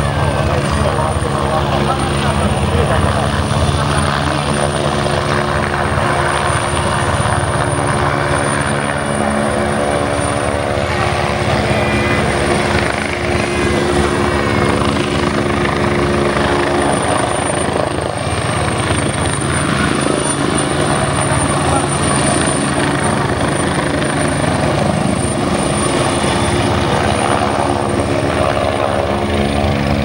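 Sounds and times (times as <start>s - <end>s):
helicopter hovering: 0.0s - 30.0s
thin high whine: 7.7s - 17.0s.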